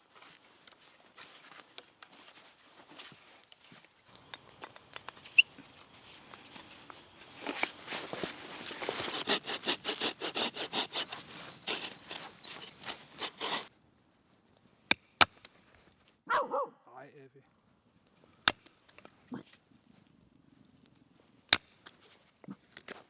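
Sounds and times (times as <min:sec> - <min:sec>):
hand saw cutting wood: 0:07.5 - 0:13.7.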